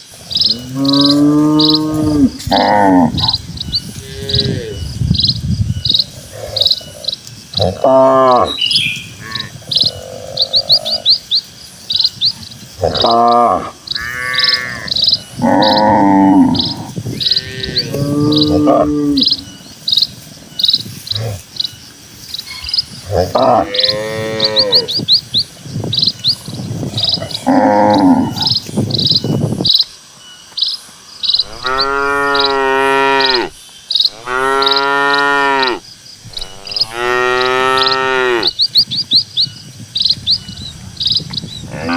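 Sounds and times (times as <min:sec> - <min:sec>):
cattle mooing: 0:00.4 - 0:04.9, 0:12.8 - 0:19.5, 0:23.1 - 0:25.0, 0:31.4 - 0:38.6.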